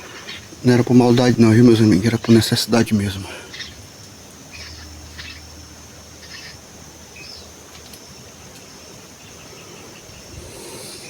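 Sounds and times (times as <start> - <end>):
high-pitched insect drone: 0.0 - 11.0
low wind rumble on microphone: 10.0 - 11.0.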